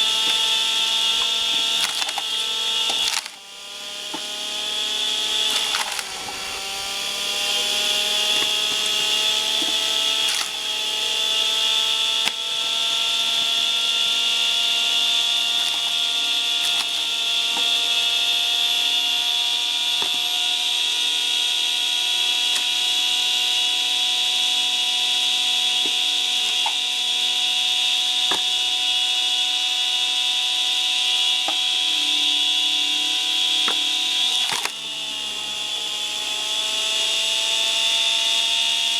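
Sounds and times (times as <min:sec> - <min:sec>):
motor whining: 0:00.0 - 0:38.9
wood cracking: 0:01.5 - 0:03.4, 0:05.4 - 0:06.4, 0:09.6 - 0:10.6, 0:16.6 - 0:17.7, 0:33.7 - 0:34.7.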